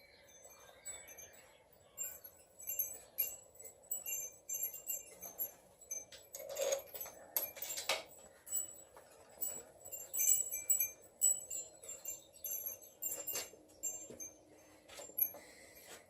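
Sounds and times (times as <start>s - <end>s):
metal tools clinking: 2.0s - 14.4s.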